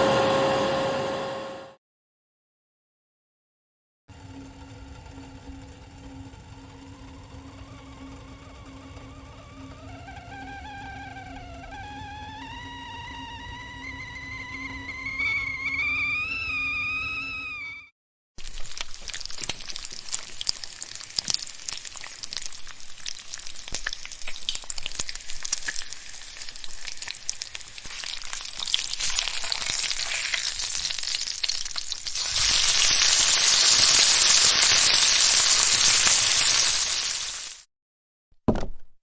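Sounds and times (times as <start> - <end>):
sizzling hiss with crackling pops: 18.4 - 37.7.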